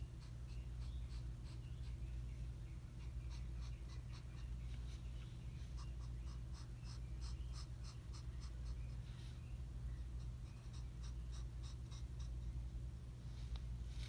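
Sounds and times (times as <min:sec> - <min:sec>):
steady low hum: 0:00.0 - 0:14.0
drawing tool scratching paper: 0:10.2 - 0:12.4.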